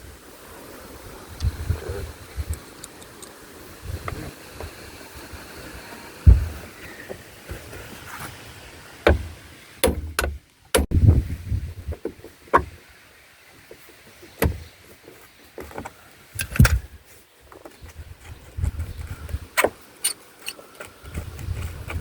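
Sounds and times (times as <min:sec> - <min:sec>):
knocks and clunks on car fittings: 0:06.3 - 0:07.6, 0:09.1 - 0:11.0, 0:11.9 - 0:12.8, 0:13.7 - 0:14.8.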